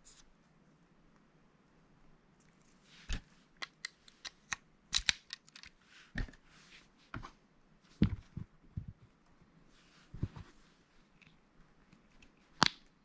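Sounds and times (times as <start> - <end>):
plastic bricks clicking together: 3.6 - 5.8
soft rustles: 5.8 - 12.5.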